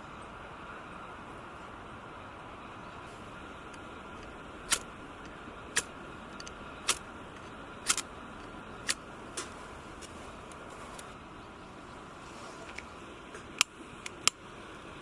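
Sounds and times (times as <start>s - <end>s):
steady hiss: 0.0s - 15.0s
sharp short clicks: 3.7s - 11.1s.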